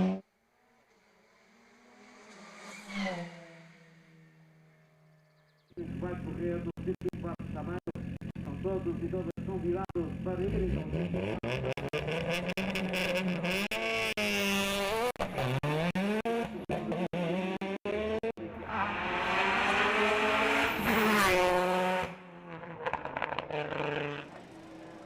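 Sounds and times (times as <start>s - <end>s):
race car engine revving: 5.8s - 25.0s.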